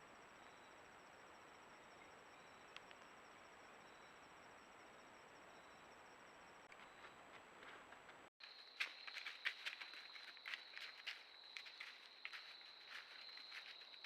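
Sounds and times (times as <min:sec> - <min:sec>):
lower insect call: 0:00.0 - 0:14.0
insect high rapid trill: 0:08.4 - 0:14.0.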